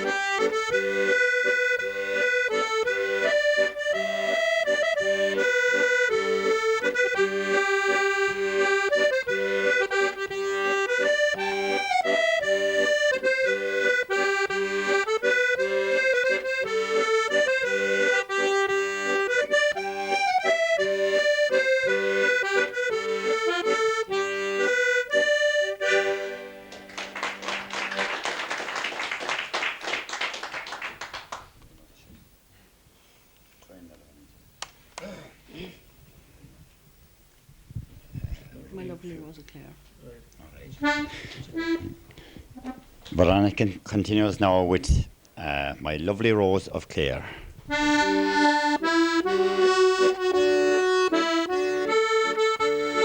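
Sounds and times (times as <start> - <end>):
accordion playing lively folk tune: 0.0 - 30.8, 40.7 - 53.0
audience applause: 26.6 - 31.6.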